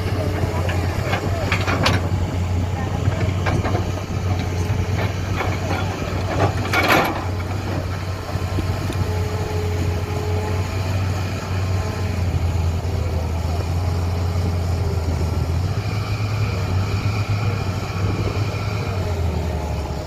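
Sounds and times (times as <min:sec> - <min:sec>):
heavy engine droning: 0:00.0 - 0:20.0
voices calling out: 0:00.0 - 0:20.0.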